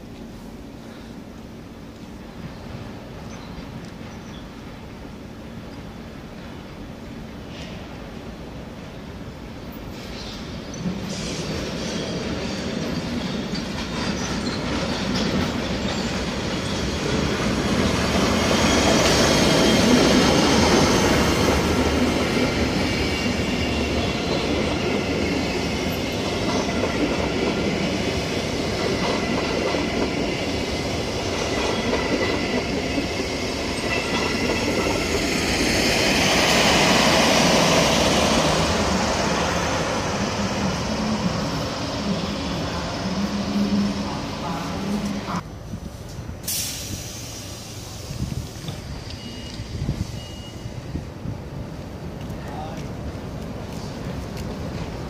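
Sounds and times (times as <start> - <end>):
train wheels rumbling on track: 0.0 - 55.0
faint wheel squeal: 48.6 - 50.8.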